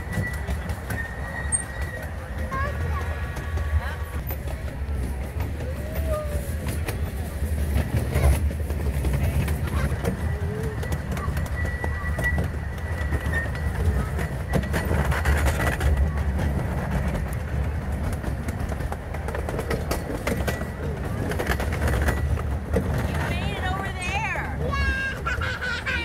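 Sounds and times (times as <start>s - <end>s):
faint high wheel squeal: 0.0s - 2.7s, 10.2s - 15.3s
train low rumble: 0.0s - 26.0s
wheels clicking over rail joints: 0.0s - 26.0s.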